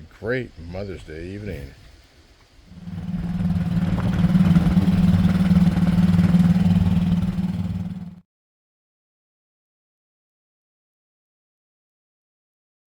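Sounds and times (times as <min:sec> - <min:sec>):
engine humming: 0:00.0 - 0:08.2.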